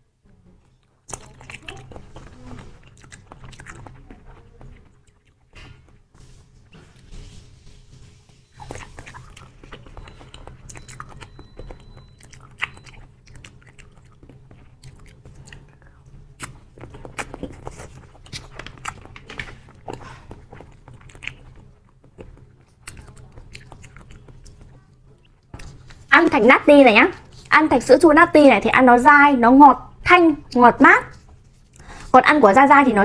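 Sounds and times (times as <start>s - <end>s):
person chewing sticky jelly: 0.5s - 26.2s.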